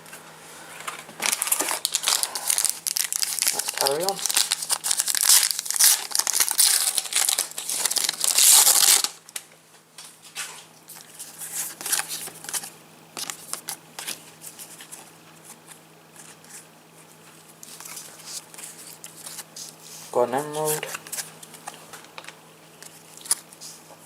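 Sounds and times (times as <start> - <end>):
foil packet tearing and crinkling: 1.2 - 9.2, 20.7 - 23.6.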